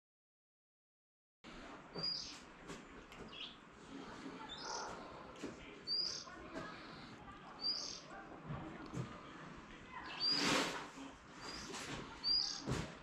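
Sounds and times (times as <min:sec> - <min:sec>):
small bird chirping: 0:01.9 - 0:02.4, 0:03.2 - 0:03.6, 0:05.8 - 0:06.4, 0:07.5 - 0:08.1, 0:10.0 - 0:10.5, 0:11.4 - 0:12.6.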